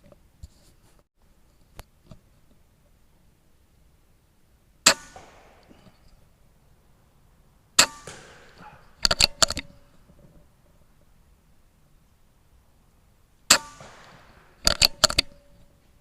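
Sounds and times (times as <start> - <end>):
air rifle shots: 4.8 - 6.8, 7.7 - 10.0, 13.5 - 15.4
sharp clicks and knocks: 7.8 - 10.8, 13.4 - 15.8.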